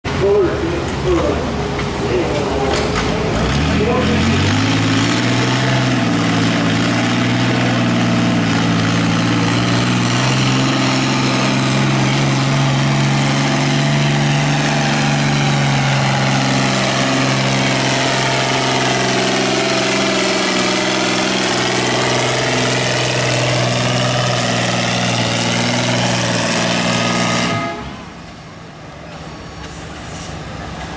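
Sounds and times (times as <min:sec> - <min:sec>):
tractor engine at full throttle: 0:00.0 - 0:30.9.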